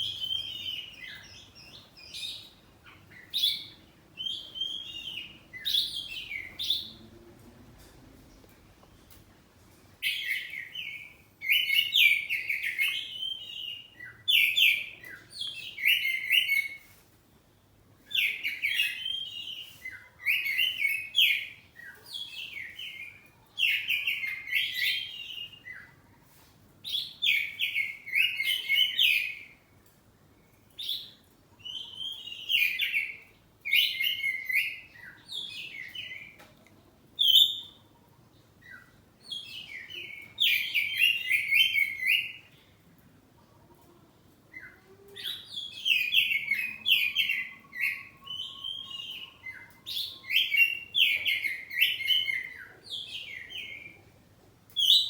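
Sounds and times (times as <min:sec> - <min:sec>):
bird singing whistled phrases: 0:03.3 - 0:06.9, 0:37.2 - 0:37.8, 0:44.6 - 0:54.0.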